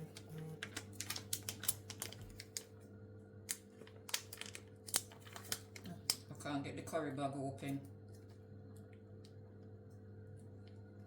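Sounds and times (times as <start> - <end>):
plastic bag crinkling: 0.0 - 2.8, 3.6 - 6.2.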